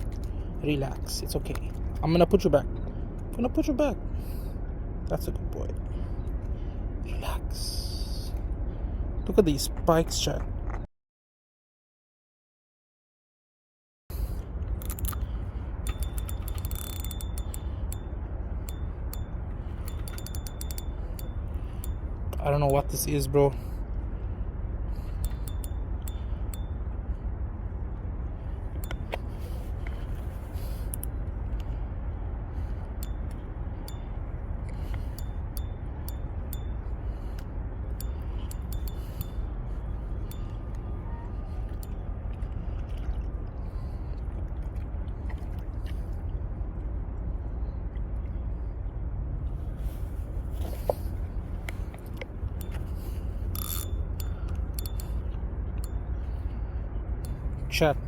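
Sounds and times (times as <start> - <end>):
steady low rumble: 0.0 - 10.9, 14.1 - 58.0
fishing reel gears whirring: 14.3 - 23.3, 24.9 - 27.2, 28.5 - 31.8, 32.5 - 42.1, 50.7 - 58.0
fishing reel clicking: 14.8 - 22.8, 25.0 - 26.7, 38.0 - 39.4, 52.6 - 56.0.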